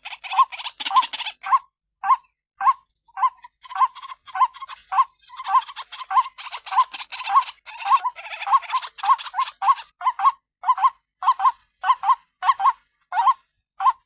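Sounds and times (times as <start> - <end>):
waterhen calling: 3.2 - 12.8.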